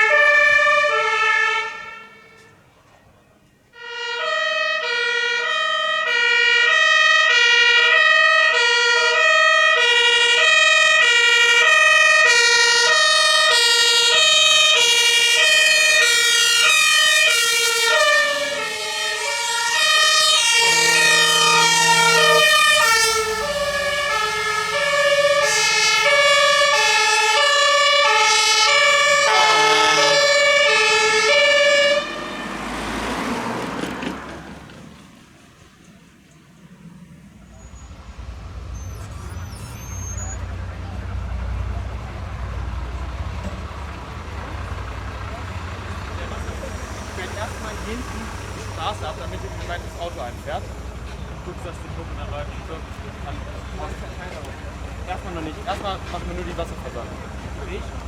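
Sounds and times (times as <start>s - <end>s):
two-tone fire engine siren: 0.0s - 2.9s, 3.7s - 58.0s.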